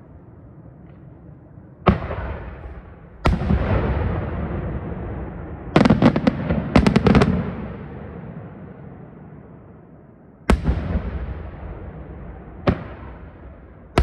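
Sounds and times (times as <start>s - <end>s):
fireworks bursting: 1.9s - 8.7s, 10.5s - 14.0s.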